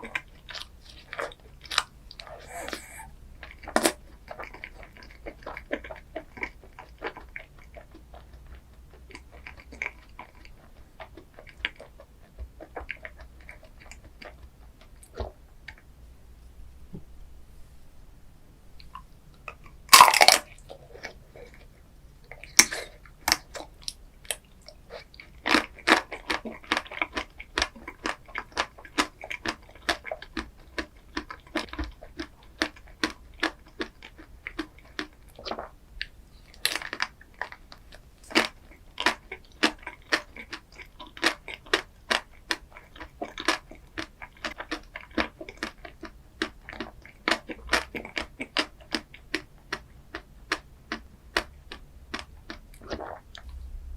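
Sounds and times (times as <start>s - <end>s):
crunchy chewing: 0.0s - 15.9s, 18.8s - 53.9s
crunching bite: 19.6s - 21.2s.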